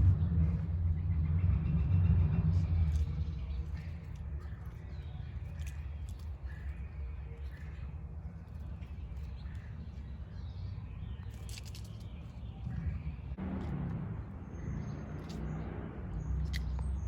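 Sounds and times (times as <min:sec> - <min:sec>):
low rumble: 0:00.0 - 0:17.0
faint bird chirps: 0:00.5 - 0:13.4.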